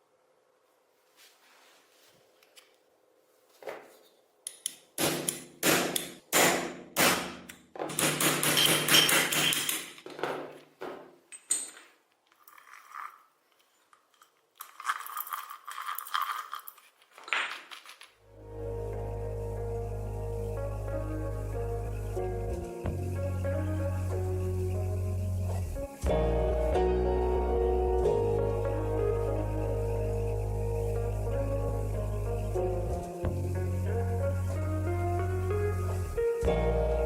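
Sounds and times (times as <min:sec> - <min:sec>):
metal parts knocking and clattering: 0:07.9 - 0:10.6, 0:11.3 - 0:18.2
music: 0:18.3 - 0:37.0.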